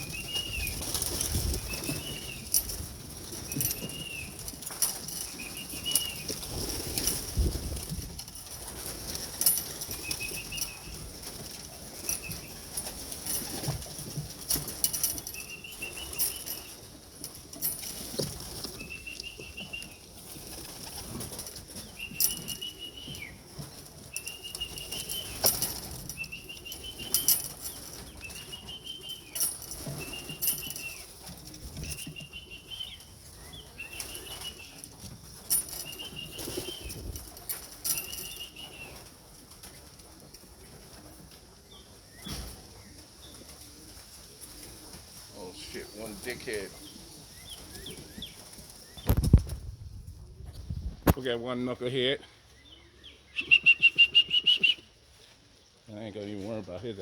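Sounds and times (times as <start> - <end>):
pigeon wings flapping: 0.0 - 32.8, 33.6 - 41.1
short high whistled notes: 53.4 - 54.8.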